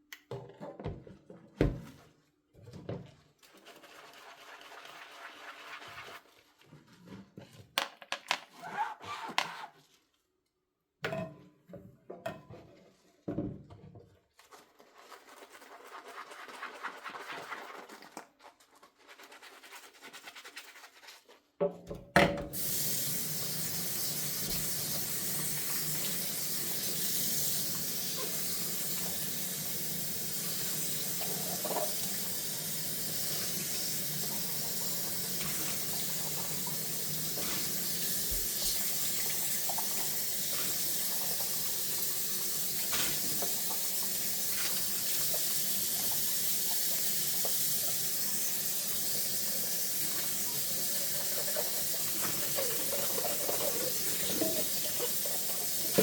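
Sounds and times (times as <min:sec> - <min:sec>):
tap running into sink: 0:24.3 - 0:25.1, 0:35.3 - 0:40.7, 0:53.5 - 0:56.0.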